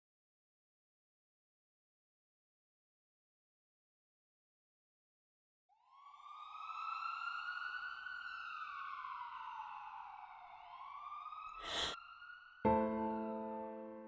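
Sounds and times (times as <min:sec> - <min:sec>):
siren wailing: 0:05.9 - 0:12.5.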